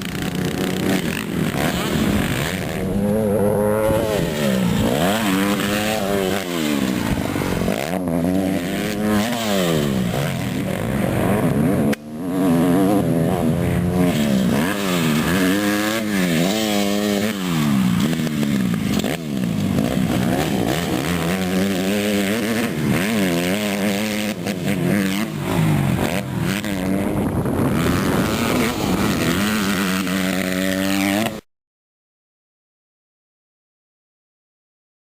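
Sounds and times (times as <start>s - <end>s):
dirt bike engine revving: 0.0s - 31.5s.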